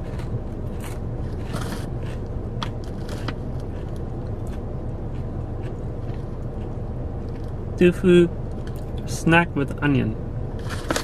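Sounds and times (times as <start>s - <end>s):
person chewing crunchy snack: 0.0s - 7.6s
steady low hum: 0.0s - 11.0s.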